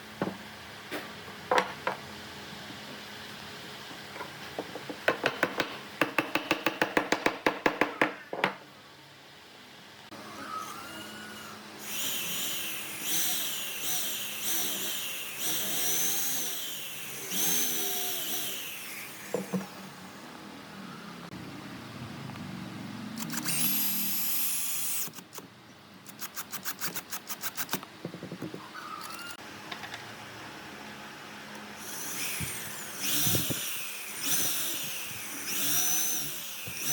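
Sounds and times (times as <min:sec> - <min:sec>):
power tools working wood: 0:10.1 - 0:20.2, 0:31.8 - 0:36.9.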